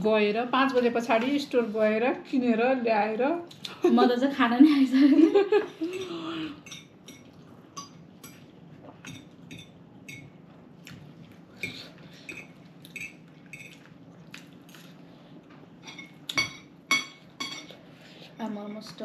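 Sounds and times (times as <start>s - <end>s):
cutlery clinking on plates: 15.8s - 17.8s.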